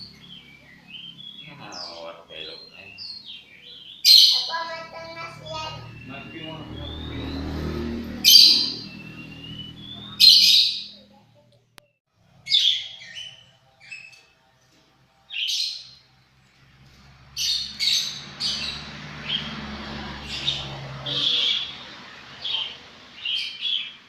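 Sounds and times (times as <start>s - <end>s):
lovebird screeching calls: 8.2s - 11.0s.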